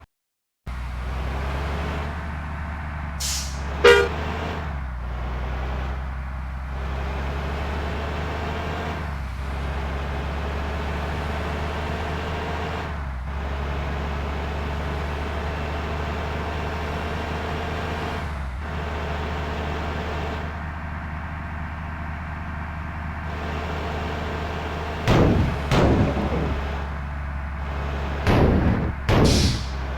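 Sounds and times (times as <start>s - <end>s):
bus diesel engine humming: 0.7s - 29.9s
loud pitched horn blast: 3.8s - 4.3s.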